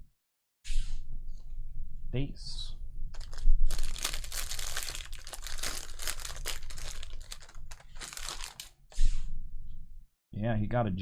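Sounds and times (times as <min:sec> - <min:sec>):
plastic wrapper crinkling and tearing: 0:03.2 - 0:08.8.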